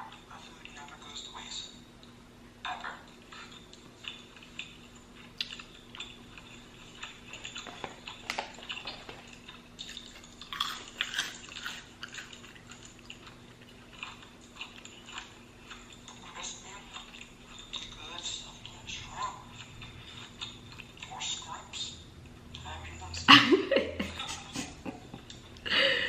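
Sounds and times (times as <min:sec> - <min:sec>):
faint steady hum: 0:00.0 - 0:26.0
crunching and chewing food: 0:03.0 - 0:22.9.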